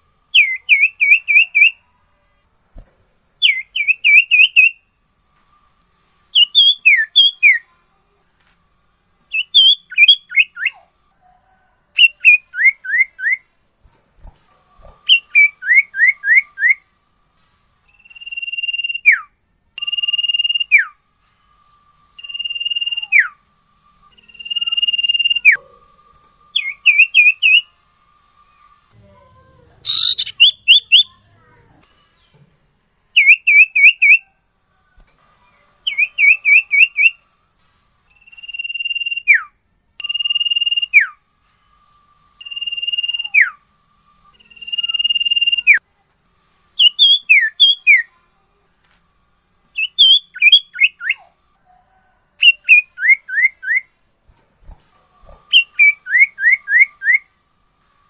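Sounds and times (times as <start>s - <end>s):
songbird whistling: 0.0s - 1.9s, 3.4s - 5.0s, 6.3s - 7.7s, 9.3s - 10.9s, 11.5s - 13.5s, 14.9s - 17.0s, 17.8s - 21.0s, 21.6s - 23.4s, 24.1s - 28.8s, 29.8s - 32.4s, 33.1s - 34.4s, 35.0s - 37.2s, 38.1s - 41.2s, 41.8s - 43.6s, 44.3s - 45.8s, 46.8s - 48.2s, 49.7s - 54.0s, 54.7s - 57.4s.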